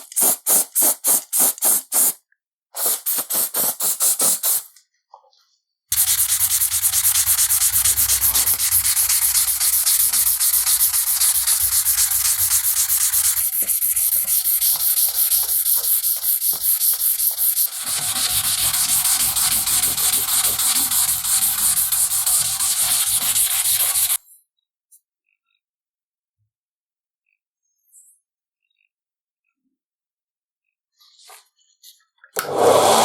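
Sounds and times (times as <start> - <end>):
sandpaper rubbing on metal: 5.9 - 24.2.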